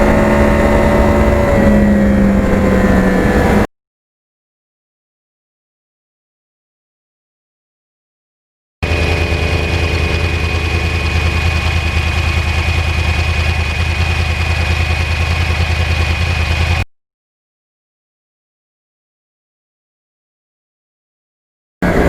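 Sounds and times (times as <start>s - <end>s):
motorcycle engine idling: 8.8s - 16.8s.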